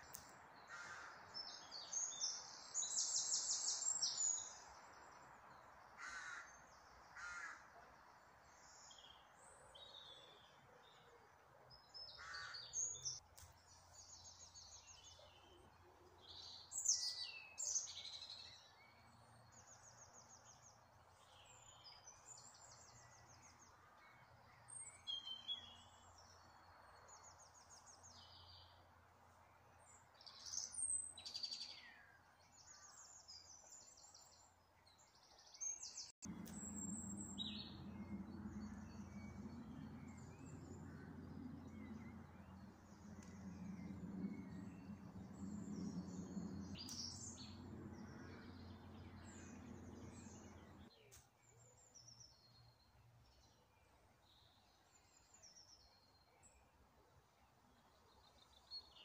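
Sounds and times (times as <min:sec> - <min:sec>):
birds chirping and trilling: 0:35.5 - 0:50.9.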